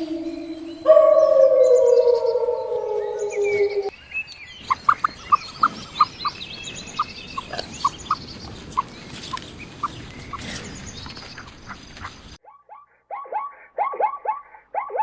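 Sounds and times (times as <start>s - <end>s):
high twittering: 0.0s - 11.5s
short chirping calls: 0.0s - 15.0s.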